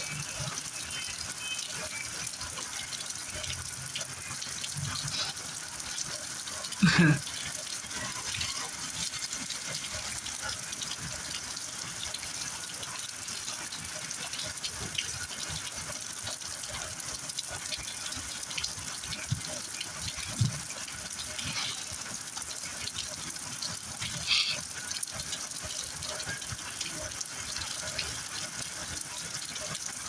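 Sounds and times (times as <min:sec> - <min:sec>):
heavy rain falling: 0:00.0 - 0:30.0
water splashes: 0:13.7 - 0:30.0.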